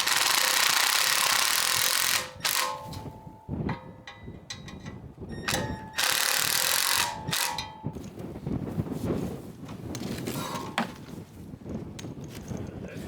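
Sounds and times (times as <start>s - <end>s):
power driver whirring: 0.0s - 3.0s.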